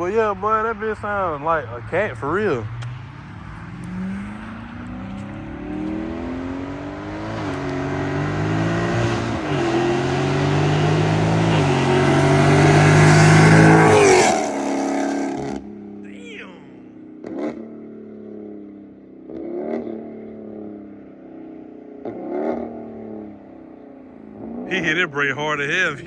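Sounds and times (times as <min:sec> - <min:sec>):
car engine accelerating past: 0:02.3 - 0:16.0.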